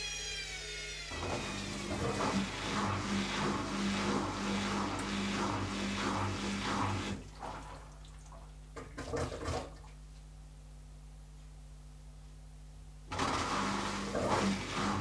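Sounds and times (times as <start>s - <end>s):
motor hum: 0.0s - 7.2s.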